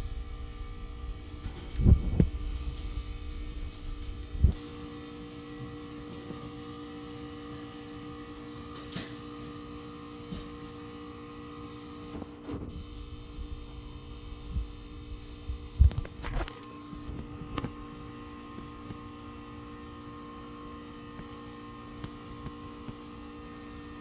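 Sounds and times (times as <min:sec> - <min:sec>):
low rumble: 0:00.0 - 0:04.6
steady hum of even tones: 0:00.0 - 0:08.5.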